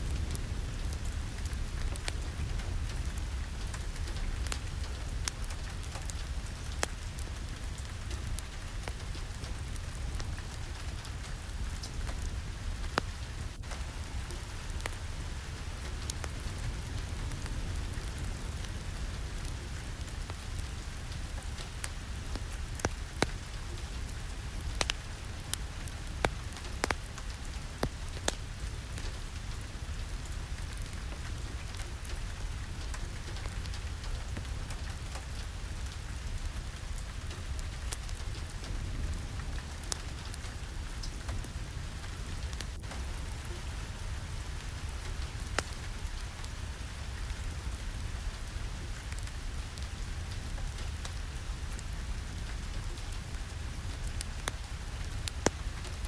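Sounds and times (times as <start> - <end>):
sharp pops and crackles: 0.0 - 47.7, 49.0 - 56.0
rain falling: 0.0 - 56.0.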